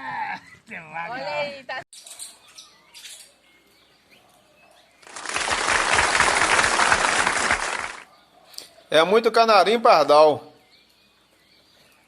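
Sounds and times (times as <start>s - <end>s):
birds wingbeats whirring: 5.0s - 8.0s.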